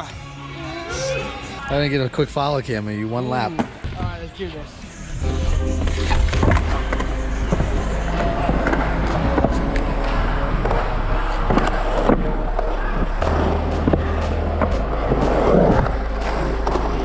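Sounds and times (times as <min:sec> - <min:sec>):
background music with bass: 0:05.2 - 0:17.0.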